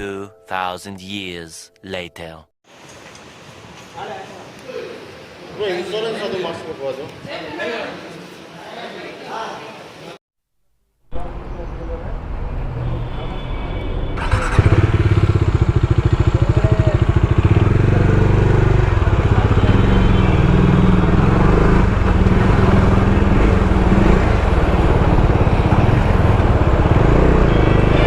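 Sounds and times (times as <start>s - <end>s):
motorcycle engine running: 14.2s - 28.0s.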